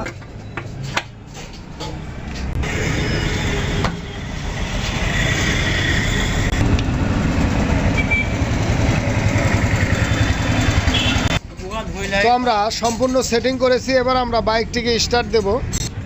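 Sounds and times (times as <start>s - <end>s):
motorcycle engine running: 4.9s - 11.4s.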